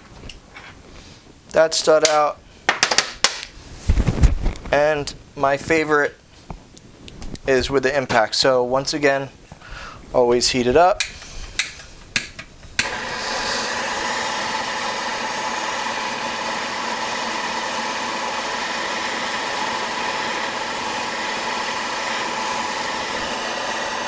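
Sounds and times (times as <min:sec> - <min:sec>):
heating tool hissing: 0:12.8 - 0:24.0.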